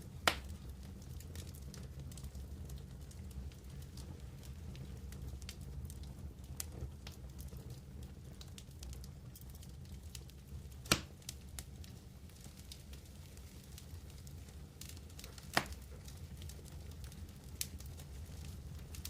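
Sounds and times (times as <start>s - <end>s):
campfire crackling: 0.0s - 19.0s
loud sharp pop: 10.9s - 11.1s.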